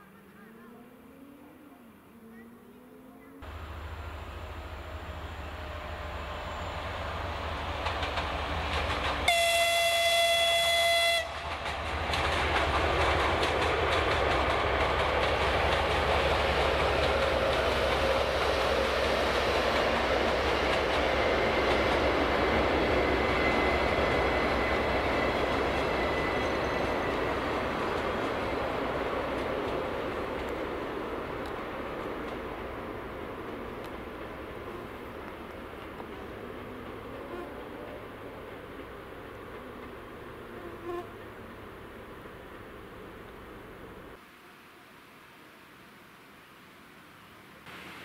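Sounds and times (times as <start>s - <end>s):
train wheels rumbling on rails: 3.4s - 40.5s
train horn blast: 9.3s - 11.4s, 37.1s - 38.0s, 40.6s - 41.2s.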